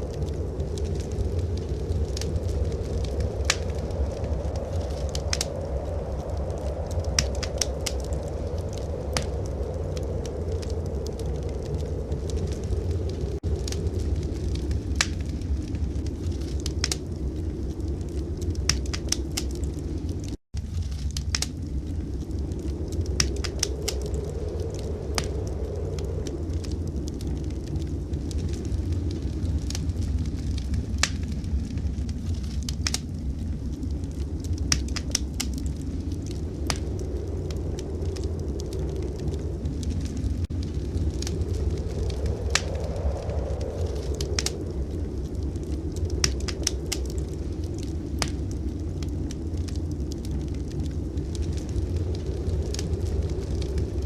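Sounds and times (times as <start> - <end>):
fire popping: 0.0 - 54.0
steady low rumble: 0.0 - 54.0
wood fire crackling: 0.0 - 54.0.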